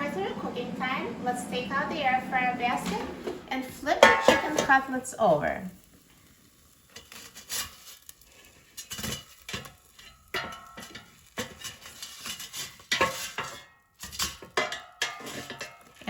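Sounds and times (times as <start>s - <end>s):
utensil scraping metal basket: 6.9s - 16.0s.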